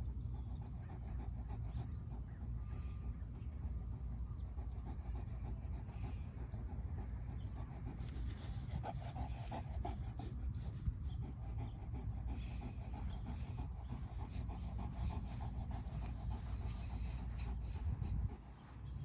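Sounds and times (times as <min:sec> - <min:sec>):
dog panting: 0:00.0 - 0:19.0
low rumble: 0:08.0 - 0:19.0.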